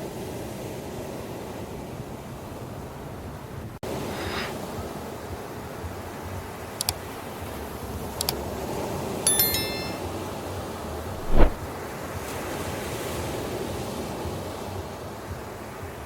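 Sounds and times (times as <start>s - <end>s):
high bell-like ringing tones: 9.3s - 10.2s
wind on microphone: 11.2s - 11.6s.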